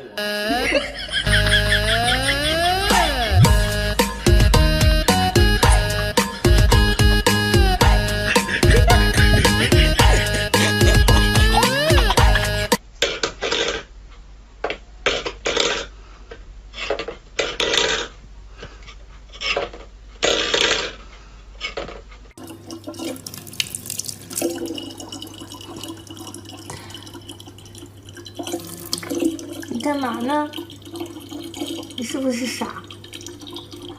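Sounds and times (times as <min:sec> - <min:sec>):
low hum: 0:00.5 - 0:12.8
water splashing: 0:22.4 - 0:33.9
water trickling: 0:22.4 - 0:33.9.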